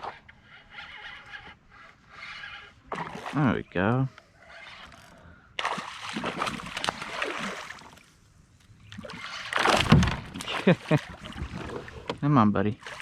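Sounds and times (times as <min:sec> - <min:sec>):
fish thrashing and splashing water: 0:05.6 - 0:08.1, 0:08.9 - 0:12.1, 0:12.8 - 0:13.0.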